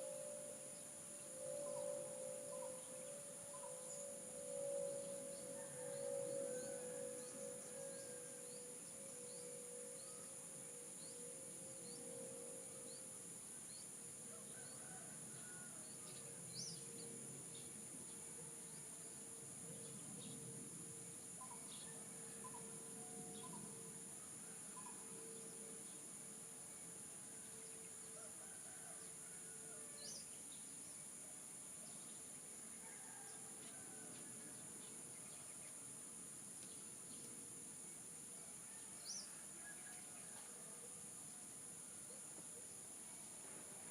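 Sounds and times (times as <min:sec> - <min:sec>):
low sustained tone: 0:00.0 - 0:13.2
high-pitched insect chorus: 0:00.0 - 0:43.9.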